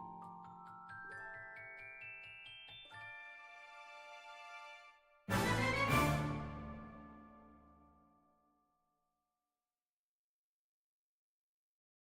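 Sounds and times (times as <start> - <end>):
loud music chord: 5.3 - 7.5.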